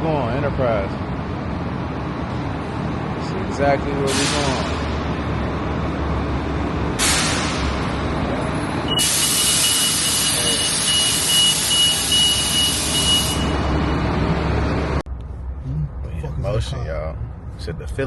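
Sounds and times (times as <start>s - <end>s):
bus engine rumble: 0.0s - 18.0s
compressed air hissing: 4.1s - 4.8s.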